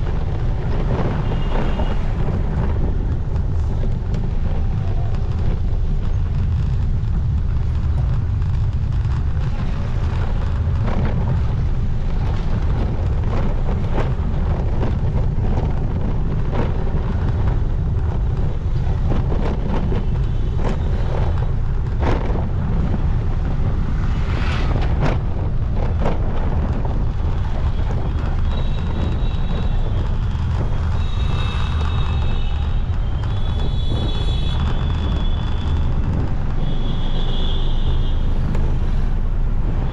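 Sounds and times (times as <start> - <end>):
wind buffeting microphone: 0.0 - 39.9
vehicle horns honking: 33.4 - 35.4, 36.6 - 38.4.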